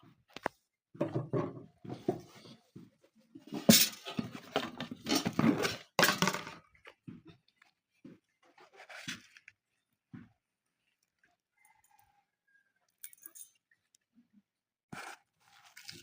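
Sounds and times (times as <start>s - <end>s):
dishes and utensils clattering: 3.4s - 6.6s.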